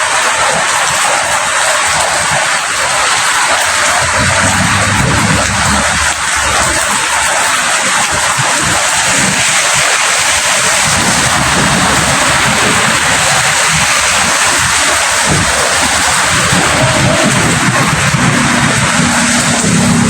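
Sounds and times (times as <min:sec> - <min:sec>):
heavy rain hissing: 0:00.0 - 0:20.0
low fluttering rumble: 0:03.6 - 0:08.6, 0:10.8 - 0:20.0.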